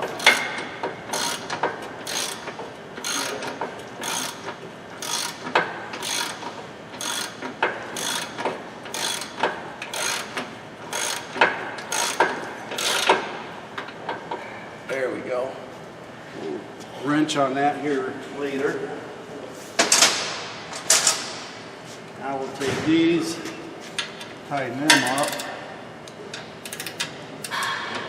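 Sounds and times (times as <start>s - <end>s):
hand ratchet clicking: 1.1s - 13.2s, 24.9s - 25.5s, 26.3s - 27.7s.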